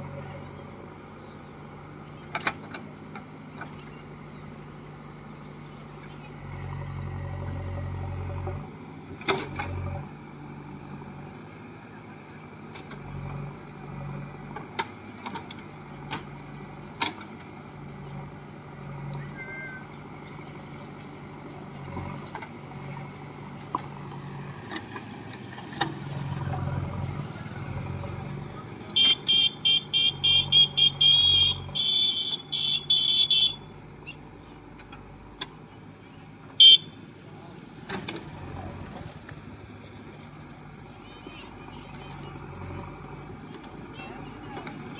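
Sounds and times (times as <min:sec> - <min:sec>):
backhoe diesel engine running: 0:00.0 - 0:44.9.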